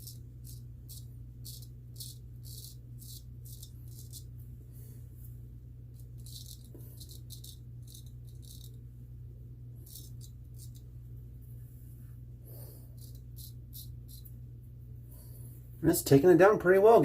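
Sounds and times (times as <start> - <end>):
razor scraping whiskers: 0.0 - 4.4, 5.9 - 8.8, 9.8 - 10.9, 12.6 - 14.4
low steady hum: 0.0 - 17.0.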